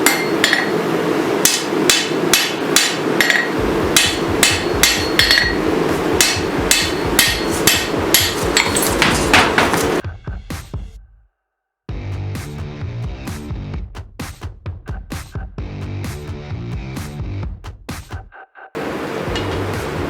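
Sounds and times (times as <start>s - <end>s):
continuous rushing noise: 0.0s - 10.0s, 18.8s - 20.0s
hammer ringing on steel: 0.0s - 10.0s.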